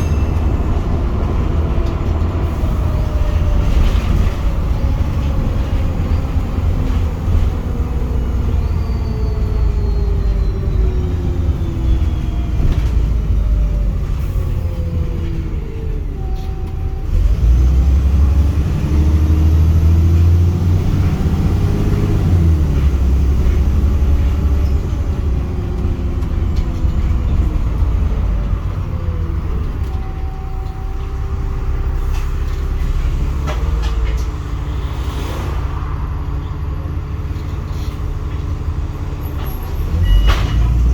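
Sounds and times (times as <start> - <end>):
bus engine with blown exhaust: 0.0 - 40.9.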